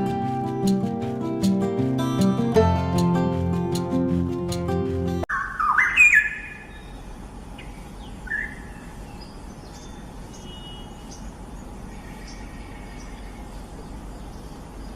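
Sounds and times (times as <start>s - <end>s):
songbird chirps: 5.3s - 14.9s.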